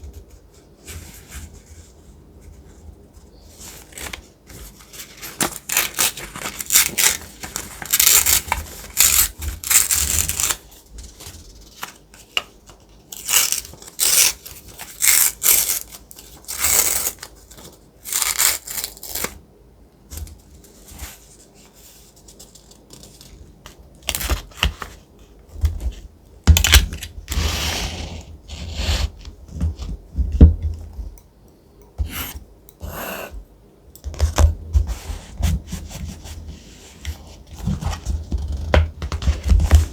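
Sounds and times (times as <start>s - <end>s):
thick paper rustling: 3.6s - 12.3s.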